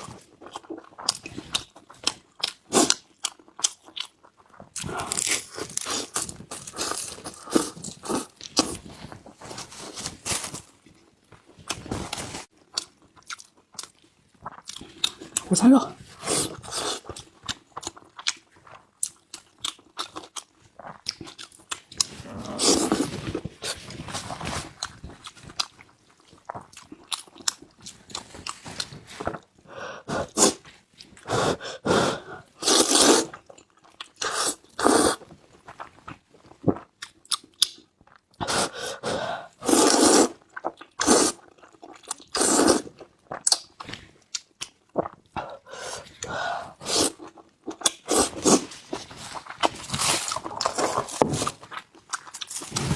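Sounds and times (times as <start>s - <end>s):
crunchy chewing: 2.4s - 10.6s.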